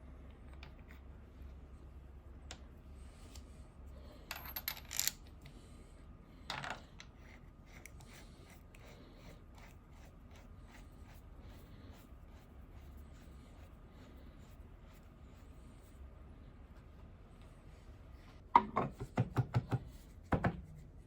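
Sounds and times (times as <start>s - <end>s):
faint steady hum: 0.0s - 21.0s
metal parts clinking: 4.3s - 5.3s.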